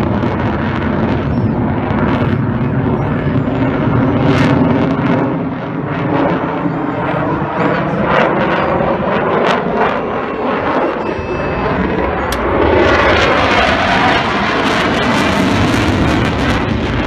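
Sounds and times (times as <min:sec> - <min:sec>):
jet engines rumbling in flight: 0:00.0 - 0:17.0.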